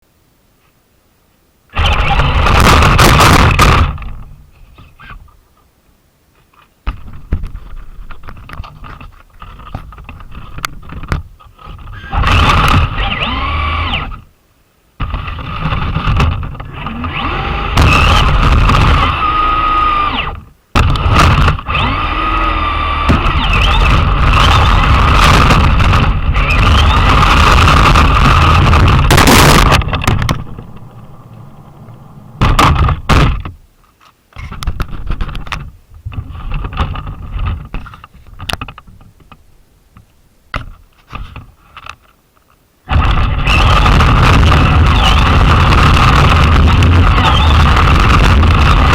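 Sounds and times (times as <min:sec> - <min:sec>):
rc truck motor whine: 0:01.7 - 0:03.0, 0:11.9 - 0:14.3, 0:16.6 - 0:33.1, 0:42.9 - 0:48.9
tyre rumble: 0:23.1 - 0:33.6.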